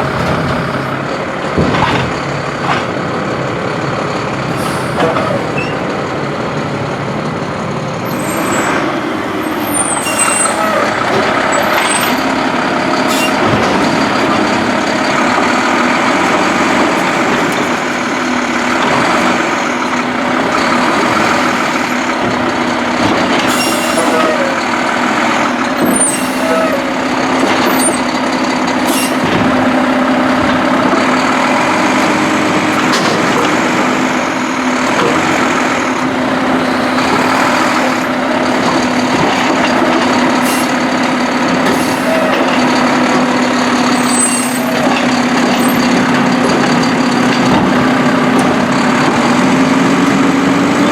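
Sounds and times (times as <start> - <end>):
refuse truck engine drone: 0.0 - 50.9
sharp knocks and clanks: 1.4 - 3.0, 10.5 - 24.5, 27.1 - 36.1, 37.0 - 50.2.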